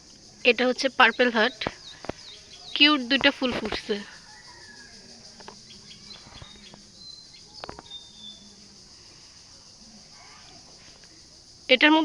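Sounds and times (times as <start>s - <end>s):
steady high hiss: 0.0s - 12.0s
thin bird chirps: 1.0s - 8.7s.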